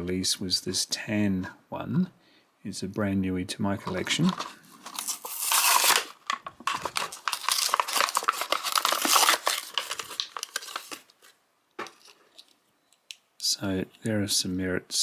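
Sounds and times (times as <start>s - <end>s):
plastic packaging crinkling: 3.8s - 12.6s.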